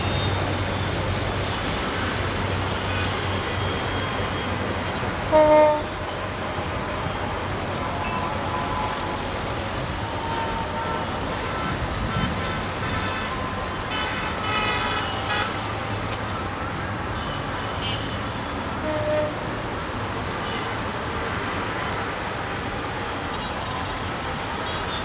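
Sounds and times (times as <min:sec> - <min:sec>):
passenger train rumbling on track: 0:00.0 - 0:25.0
train horn toot: 0:05.3 - 0:06.0, 0:18.8 - 0:19.5.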